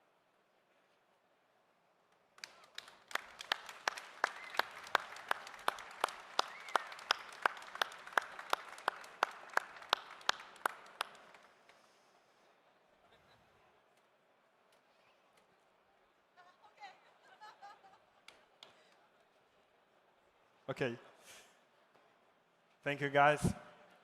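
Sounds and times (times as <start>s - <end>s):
audience applauding: 2.4s - 11.8s
loud even rhythmic claps: 2.4s - 11.9s.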